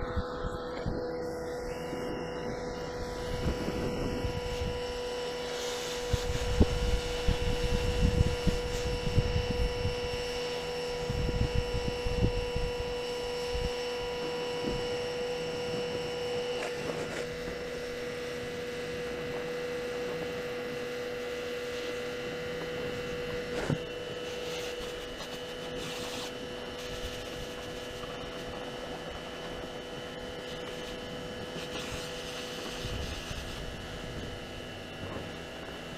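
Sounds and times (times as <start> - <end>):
steady hum: 0.0 - 35.9.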